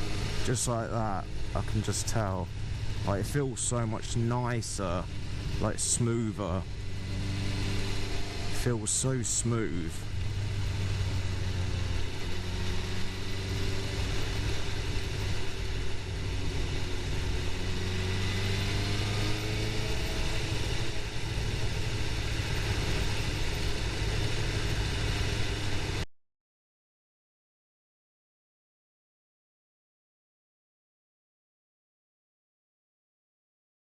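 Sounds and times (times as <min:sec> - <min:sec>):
motorcycle engine running: 0:00.0 - 0:26.0
road noise: 0:00.0 - 0:26.1.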